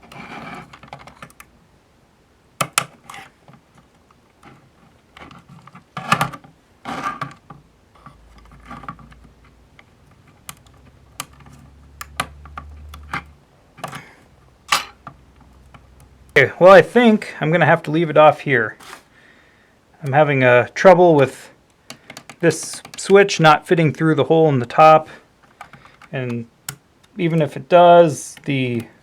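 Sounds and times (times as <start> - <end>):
plastic panels clicking and tapping: 0.0 - 1.5, 2.6 - 14.1, 21.8 - 23.2, 25.4 - 27.2.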